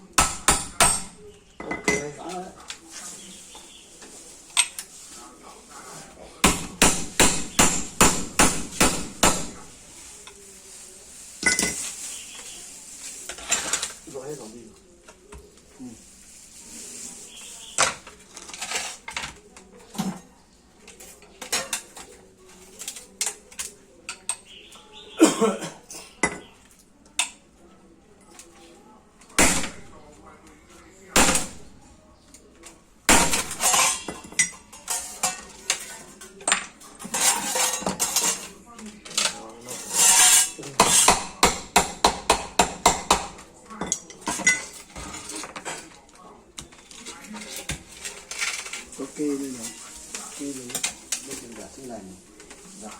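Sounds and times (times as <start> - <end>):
hammer striking metal: 6.4 - 9.6
metal tools clinking and clanking: 33.5 - 41.1, 43.8 - 45.9.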